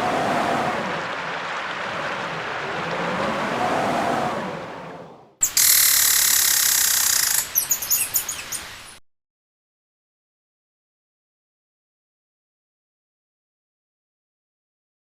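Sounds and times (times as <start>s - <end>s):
howling wind: 0.0s - 7.9s
small bird chirping: 5.4s - 9.0s.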